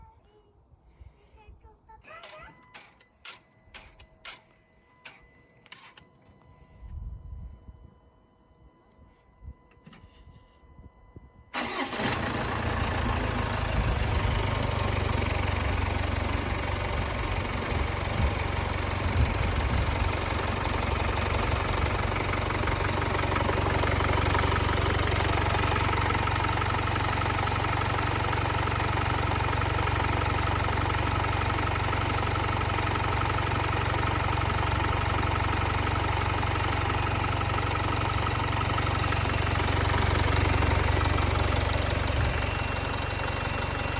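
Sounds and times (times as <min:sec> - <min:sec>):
diesel engine starting and idling: 0:11.5 - 0:43.9.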